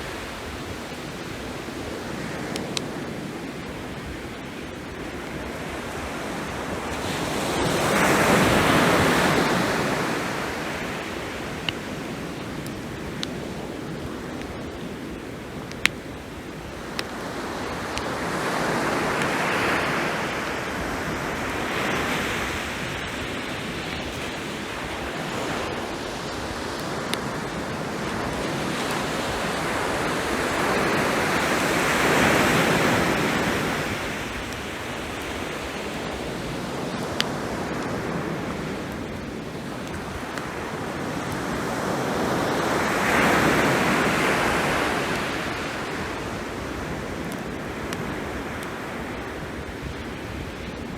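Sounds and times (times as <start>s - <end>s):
ocean waves washing ashore: 0.0s - 50.9s
campfire popping: 0.3s - 21.2s, 22.0s - 41.7s.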